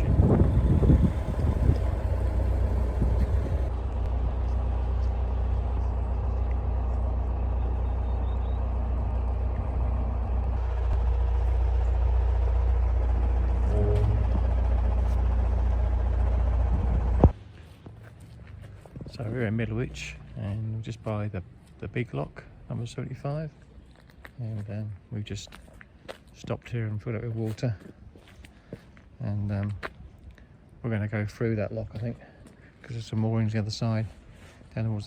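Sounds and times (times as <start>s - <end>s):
boat diesel engine droning: 0.0s - 18.5s.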